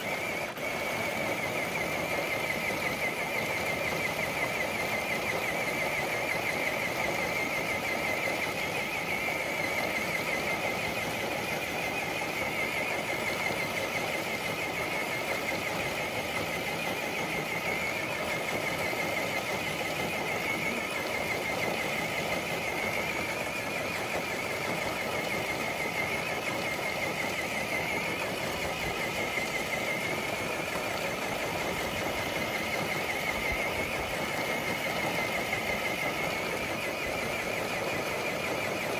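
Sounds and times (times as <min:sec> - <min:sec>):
electric motor whining: 0:00.0 - 0:38.9.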